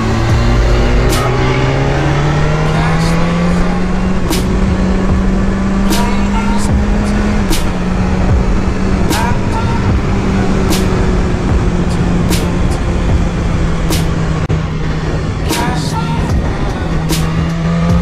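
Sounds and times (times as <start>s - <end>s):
motorcycle engine revving: 0.0s - 18.0s
wind rush over microphone: 6.7s - 18.0s.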